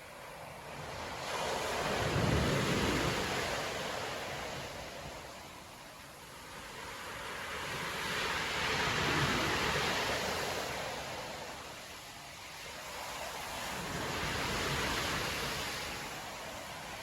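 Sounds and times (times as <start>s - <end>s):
storm surf breaking on beach: 0.0s - 17.0s.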